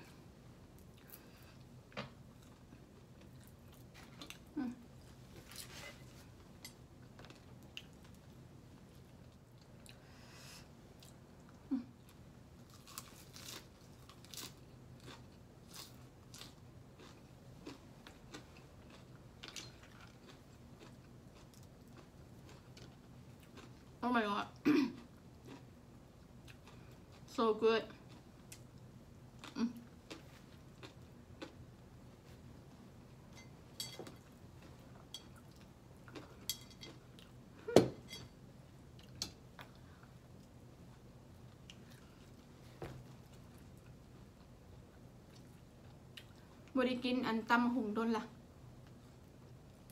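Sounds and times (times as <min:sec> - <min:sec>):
crunchy chewing: 0:12.6 - 0:24.0, 0:25.0 - 0:27.3, 0:29.4 - 0:32.4
cutlery clinking against dishes: 0:33.4 - 0:34.2.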